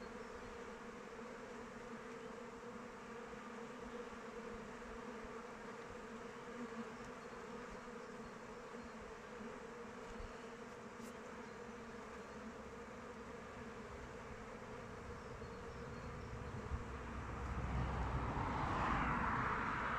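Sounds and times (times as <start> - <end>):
bees buzzing: 0.0 - 19.9.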